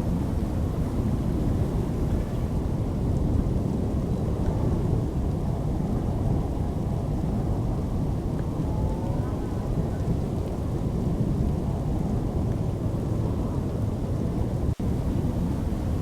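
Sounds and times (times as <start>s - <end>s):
rain: 0.0s - 16.0s
thunder rumble: 0.0s - 16.0s.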